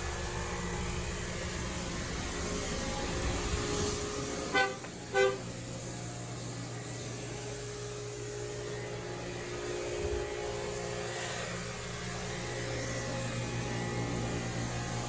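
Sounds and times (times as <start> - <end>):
vehicle engine hum: 0.0 - 15.0
car horn toots: 4.4 - 5.5.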